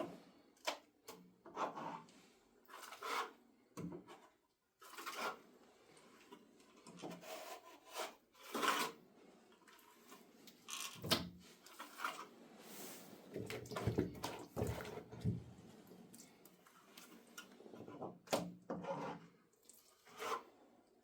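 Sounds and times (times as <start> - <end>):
scraping and dull knocks: 13.3 - 15.7, 17.6 - 19.4.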